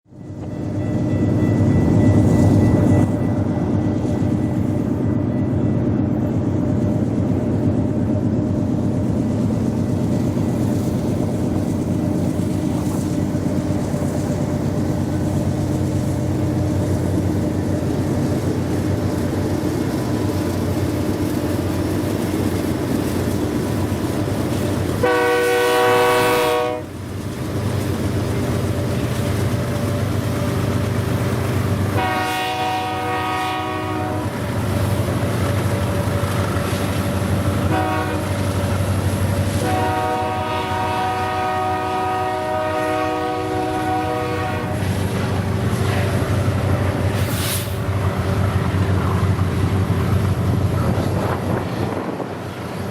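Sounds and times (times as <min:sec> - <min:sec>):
diesel locomotive engine drone: 0:00.0 - 0:52.9
train horn: 0:25.0 - 0:27.0, 0:31.9 - 0:34.5, 0:37.6 - 0:38.7, 0:39.5 - 0:44.9.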